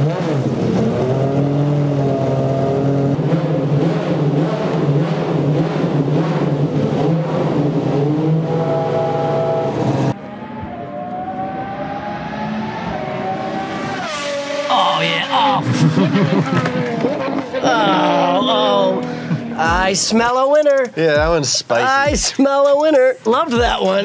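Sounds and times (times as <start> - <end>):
sports car engine revving: 0.0 - 17.8
car approaching at speed: 0.0 - 19.6.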